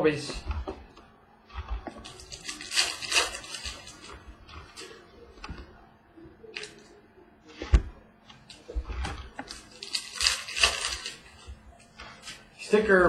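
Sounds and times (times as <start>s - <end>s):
cards clicking and rustling: 1.7s - 5.7s, 7.6s - 12.4s.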